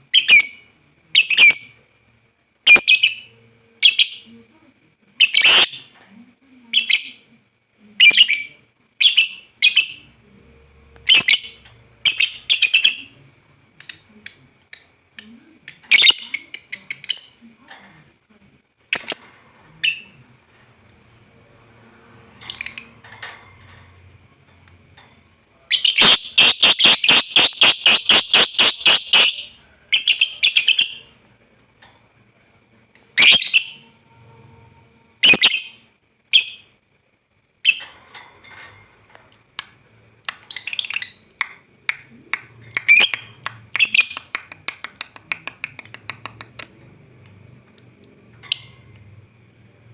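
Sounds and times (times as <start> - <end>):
lovebird chattering: 5.2 - 5.9, 25.7 - 31.1
bird chirps and squawks: 25.8 - 29.5.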